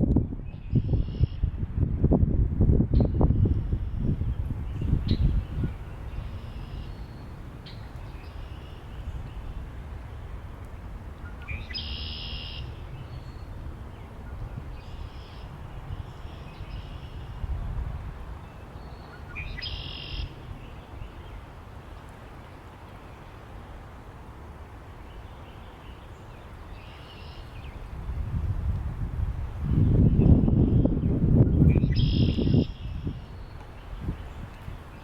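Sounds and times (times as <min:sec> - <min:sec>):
low wind rumble: 0:00.0 - 0:35.0
songbirds singing: 0:00.5 - 0:01.5, 0:03.0 - 0:09.8, 0:10.7 - 0:17.6, 0:18.4 - 0:23.5, 0:24.9 - 0:28.4, 0:29.6 - 0:35.0
loud bird calls: 0:18.8 - 0:20.4.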